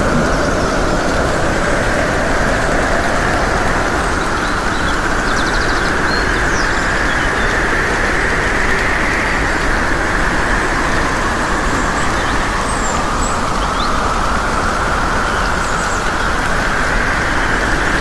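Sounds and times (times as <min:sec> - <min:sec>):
wind rushing: 0:00.0 - 0:04.6
rain: 0:00.0 - 0:18.0.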